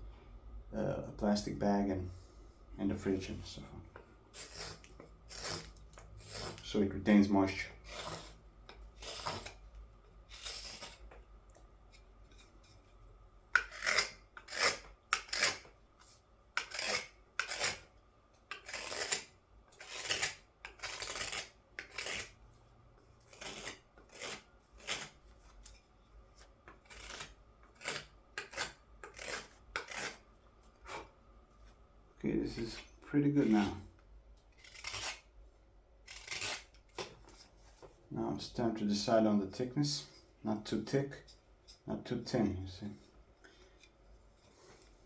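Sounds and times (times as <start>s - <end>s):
knife shaving wood: 4.3s - 9.7s, 10.3s - 12.9s, 13.5s - 17.9s, 18.5s - 22.4s, 23.2s - 25.8s, 26.4s - 31.1s, 34.5s - 35.3s, 36.1s - 37.5s.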